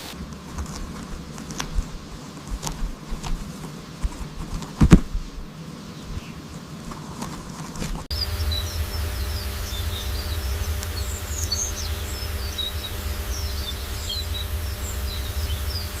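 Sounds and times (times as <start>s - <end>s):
small birds chirping: 5.1s - 16.0s
faint hum: 8.0s - 16.0s
low rumble: 8.1s - 16.0s.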